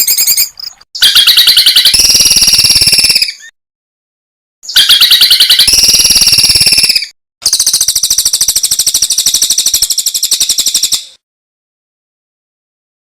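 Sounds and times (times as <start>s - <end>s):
songbird trilling: 0.0s - 3.5s, 4.7s - 11.2s.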